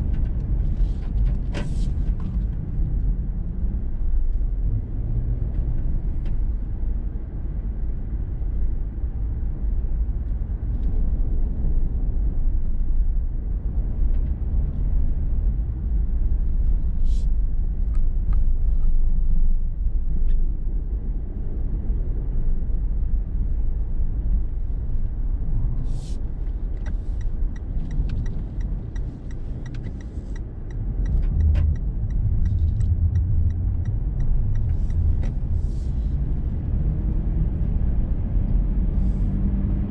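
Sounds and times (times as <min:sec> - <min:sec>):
car road and engine rumble: 0:00.0 - 0:39.9
light ticks: 0:26.4 - 0:35.5.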